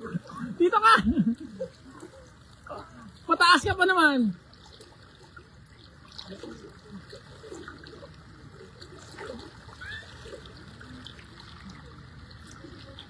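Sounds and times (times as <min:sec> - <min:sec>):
floodwater rushing: 0:00.0 - 0:01.7, 0:02.7 - 0:04.4.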